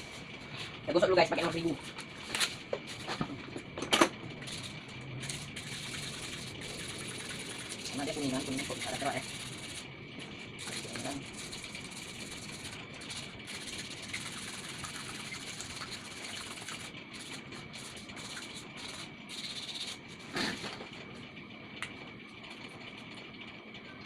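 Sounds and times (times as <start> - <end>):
sandpaper rubbing on metal: 5.6 - 9.8, 10.6 - 20.0.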